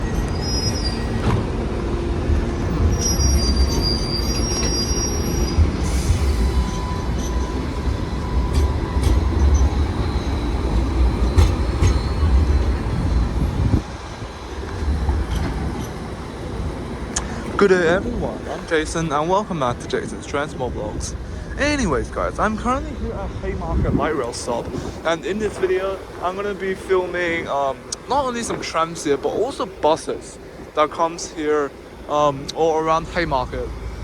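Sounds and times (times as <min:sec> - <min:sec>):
high wheel squeals: 0:00.0 - 0:01.6, 0:02.6 - 0:13.8
tram rumbling on rails: 0:00.0 - 0:34.0.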